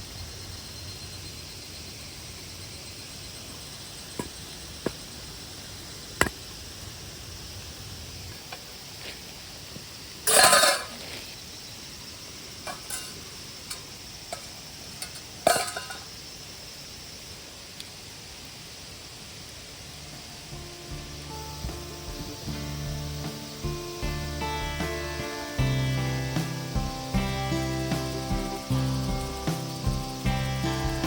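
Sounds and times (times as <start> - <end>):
steady background hiss: 0.0 - 31.0
cookware scraping clatter: 10.3 - 11.0, 12.7 - 13.2, 15.0 - 16.1
metal cookware clinking: 10.3 - 11.0, 12.7 - 16.1.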